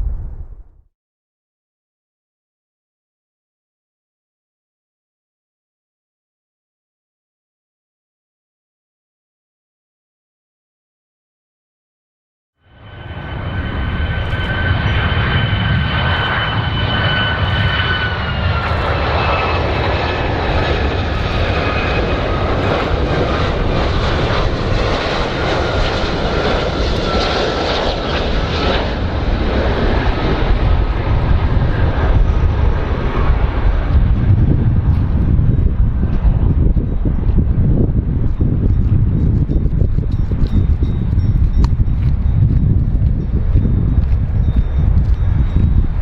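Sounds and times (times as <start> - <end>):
airplane engines roaring: 0.0 - 0.8, 12.6 - 46.0
high engine whine: 12.6 - 46.0.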